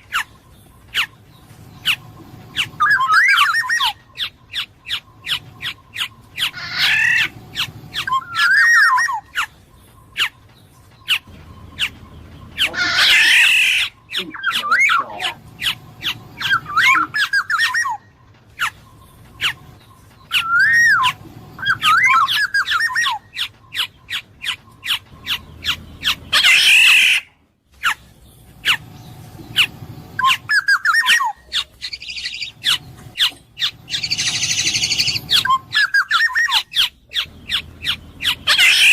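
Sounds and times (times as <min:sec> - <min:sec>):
harsh nasal bird call: 0:00.0 - 0:09.6, 0:11.1 - 0:38.9
oriole singing fluty whistles: 0:20.3 - 0:23.8.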